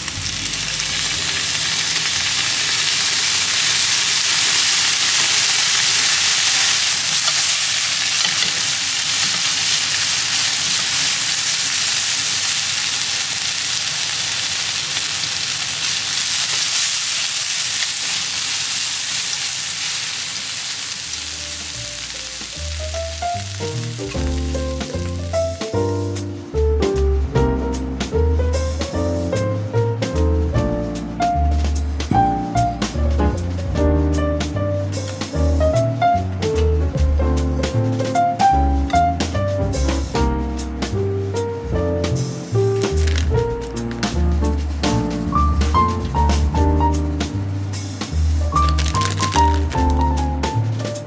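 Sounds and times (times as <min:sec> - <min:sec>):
background music: 0:00.0 - 0:02.0, 0:21.4 - 0:51.0
food sizzling in a pan: 0:00.0 - 0:26.4, 0:37.7 - 0:51.0.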